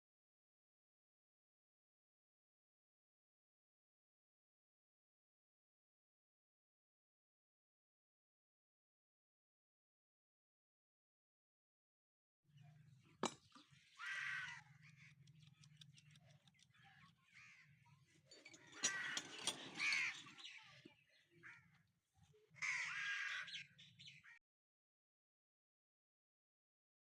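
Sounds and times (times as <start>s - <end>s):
crows cawing: 13.8s - 16.0s, 17.2s - 17.9s, 18.6s - 20.6s, 21.4s - 21.8s, 22.6s - 24.4s.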